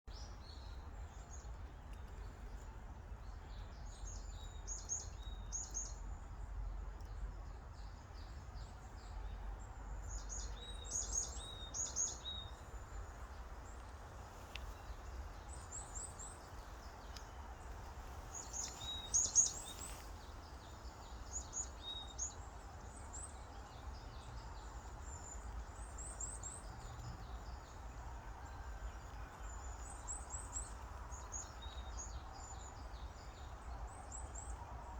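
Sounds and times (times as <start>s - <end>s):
small songbirds singing: 0.1s - 34.9s.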